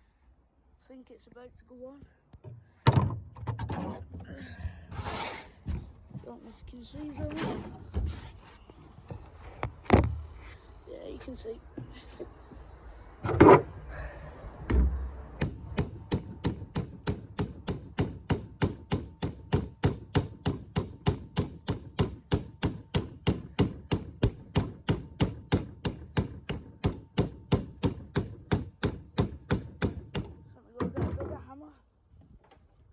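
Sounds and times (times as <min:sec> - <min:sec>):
sharp knocks with metallic ring: 0:14.7 - 0:30.4.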